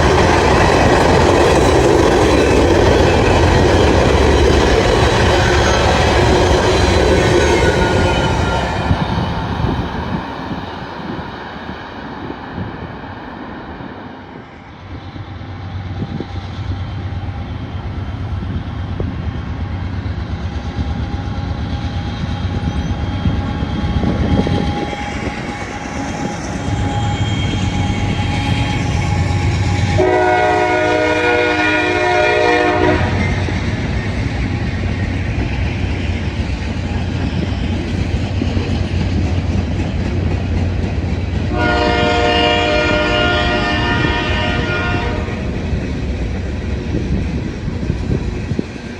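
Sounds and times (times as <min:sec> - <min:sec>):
diesel locomotive rumble: 0:00.0 - 0:48.9
locomotive air horn: 0:29.8 - 0:33.3, 0:41.5 - 0:45.5.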